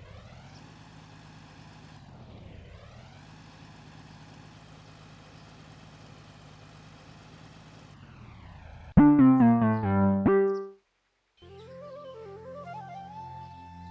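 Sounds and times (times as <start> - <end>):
electronic keyboard-like tune: 9.0 - 10.8.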